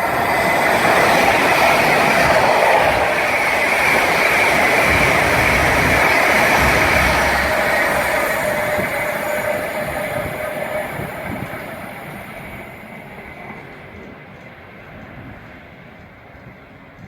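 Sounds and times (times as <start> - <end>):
train wheels rumbling on rails: 0.0 - 17.0
faint whine: 4.2 - 12.3.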